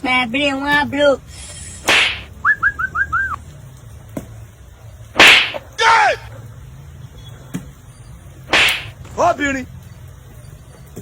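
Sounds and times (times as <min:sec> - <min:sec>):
whip-like crack: 0:01.9 - 0:02.3, 0:05.2 - 0:05.6, 0:08.5 - 0:09.0.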